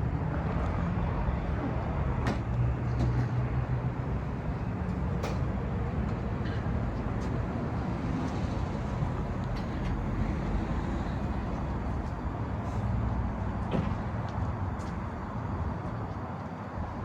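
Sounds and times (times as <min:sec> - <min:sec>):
diesel engine idling: 0:03.7 - 0:15.7.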